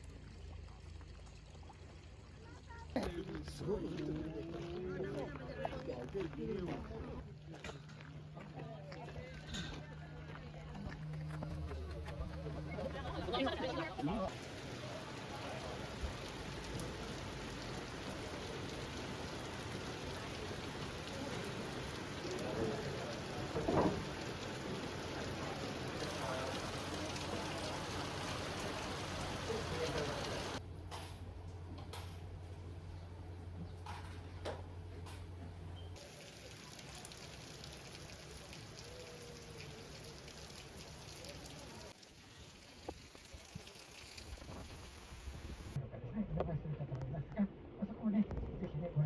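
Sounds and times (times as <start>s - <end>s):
heavy rain hissing: 14.3s - 30.6s.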